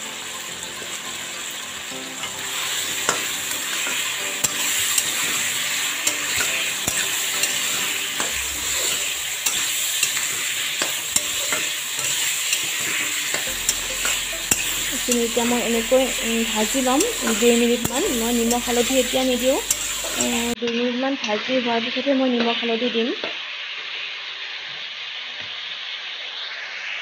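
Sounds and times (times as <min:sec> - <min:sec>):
food sizzling in hot oil: 0:00.0 - 0:27.0
metal spatula scraping pan: 0:02.2 - 0:20.6.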